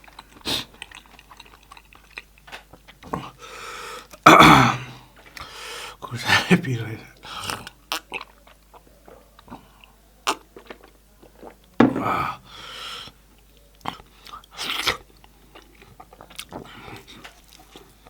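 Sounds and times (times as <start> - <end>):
person chewing: 0.0 - 4.2, 7.2 - 12.8, 13.8 - 18.0
breathy noises: 11.9 - 13.2.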